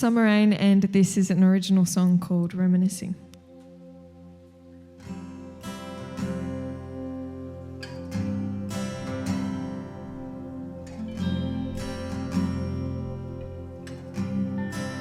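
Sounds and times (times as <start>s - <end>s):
acoustic guitar strumming chords: 3.5s - 15.0s.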